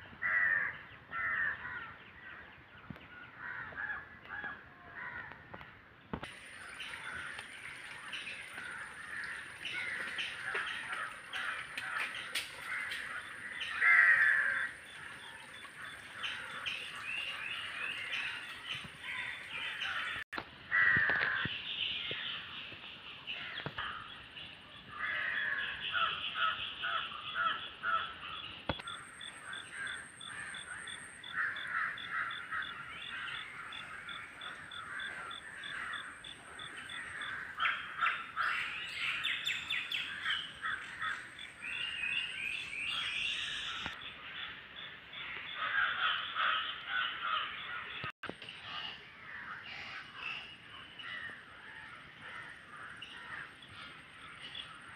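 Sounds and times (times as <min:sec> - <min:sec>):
birds calling and chirping: 0:00.3 - 0:54.9.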